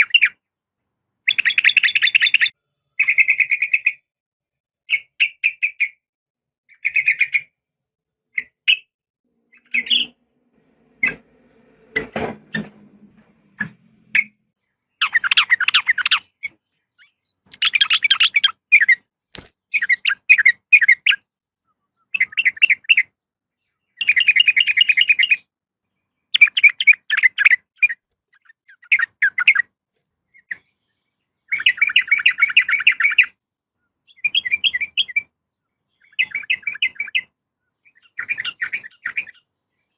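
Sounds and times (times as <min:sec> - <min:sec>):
bird chirping and chattering: 0:01.3 - 0:04.1, 0:06.7 - 0:07.6, 0:09.5 - 0:10.2, 0:14.9 - 0:21.3, 0:22.0 - 0:25.4, 0:26.3 - 0:29.7, 0:30.3 - 0:33.4, 0:34.0 - 0:39.9.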